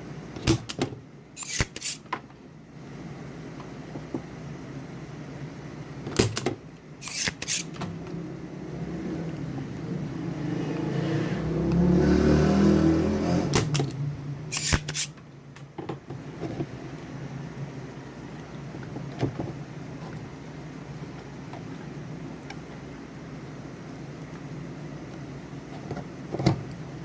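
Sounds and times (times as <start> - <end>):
sharp clicks and handling knocks: 6.1 - 8.0.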